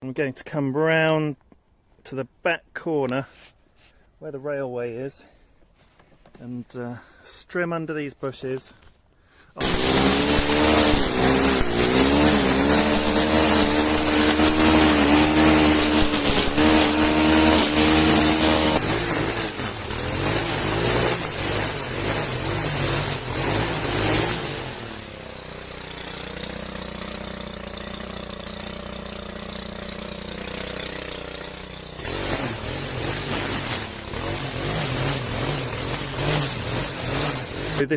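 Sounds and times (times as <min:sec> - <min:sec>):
string trimmer running: 0:09.6 - 0:37.9.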